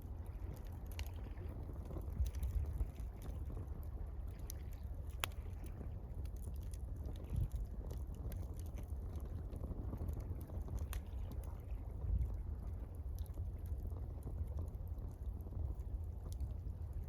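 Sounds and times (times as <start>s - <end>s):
campfire crackling and popping: 0.0s - 17.0s
water rumble: 0.0s - 17.0s.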